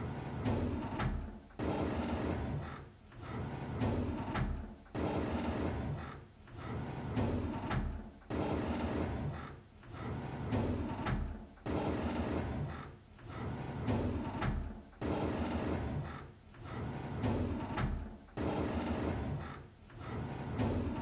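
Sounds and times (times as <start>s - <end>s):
drawer sliding open on runners: 0.0s - 21.0s.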